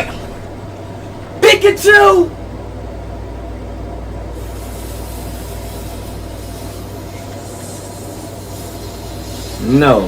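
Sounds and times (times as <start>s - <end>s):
low steady hum: 0.0s - 10.0s
firework hissing: 4.4s - 10.0s.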